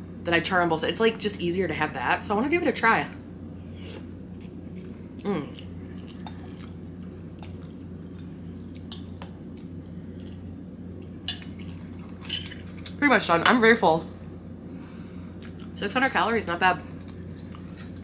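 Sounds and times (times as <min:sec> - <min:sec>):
steady low hum: 0:00.0 - 0:18.0
person chewing: 0:04.3 - 0:10.6, 0:17.0 - 0:18.0.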